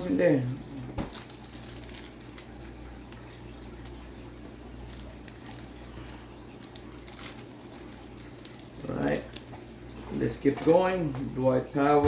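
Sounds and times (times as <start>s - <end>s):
trading cards rustling: 0.3s - 4.0s, 4.7s - 9.6s.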